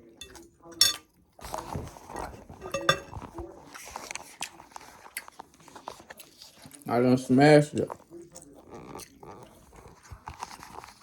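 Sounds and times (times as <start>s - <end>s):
chewing and mouth noises: 3.2s - 11.0s.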